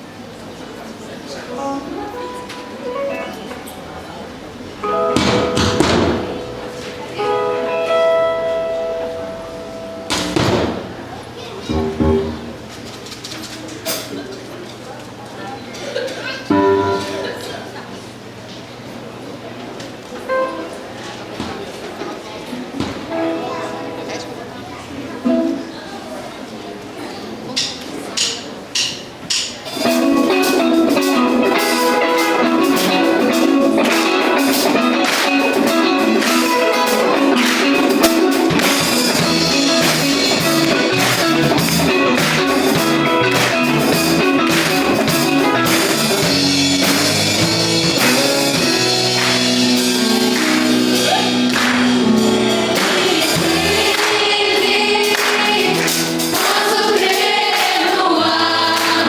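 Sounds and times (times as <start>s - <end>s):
gospel band playing: 1.4s - 14.3s, 16.5s - 18.3s, 23.0s - 26.1s, 29.2s - 59.0s
group singing: 52.4s - 59.0s.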